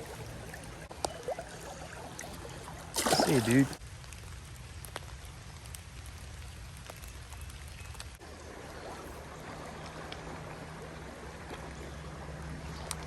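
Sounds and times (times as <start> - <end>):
rain falling on a creek: 0.0 - 13.0
raindrop ticks: 3.8 - 8.2, 12.8 - 13.0.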